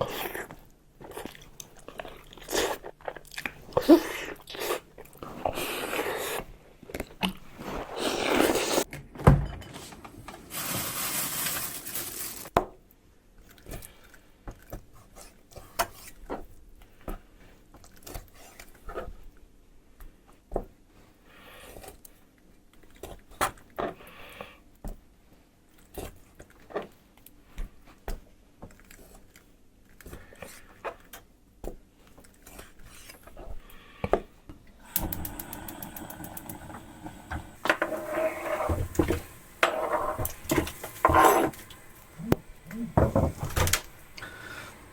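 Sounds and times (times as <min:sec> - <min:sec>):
utensils and dishes knocking: 0:37.6 - 0:41.7.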